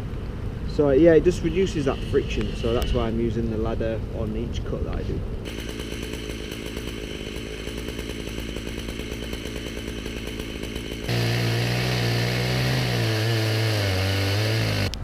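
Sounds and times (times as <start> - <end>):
chainsaw ripping log: 5.5 - 15.0.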